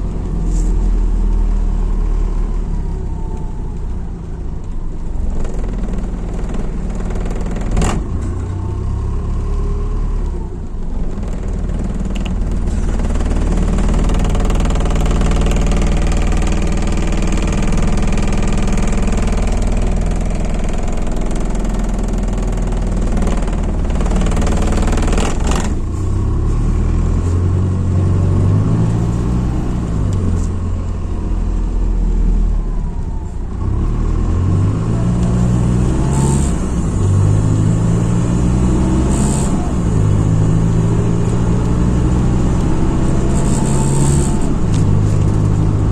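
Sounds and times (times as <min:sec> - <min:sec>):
bus engine running: 0:00.0 - 0:45.9
road noise: 0:00.0 - 0:45.9.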